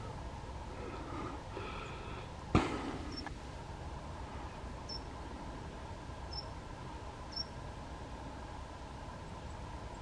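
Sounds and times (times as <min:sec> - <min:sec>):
low outdoor hum: 0:00.0 - 0:10.0.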